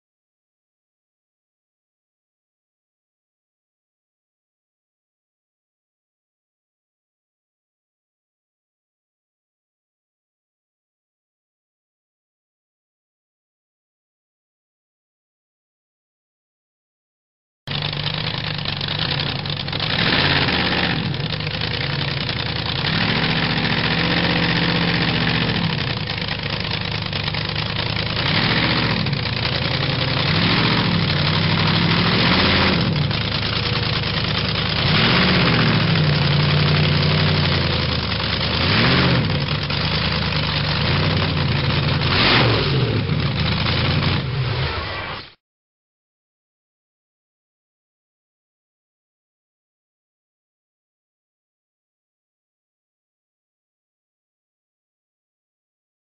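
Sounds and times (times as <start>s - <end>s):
engine idling and revving: 17.7s - 45.0s.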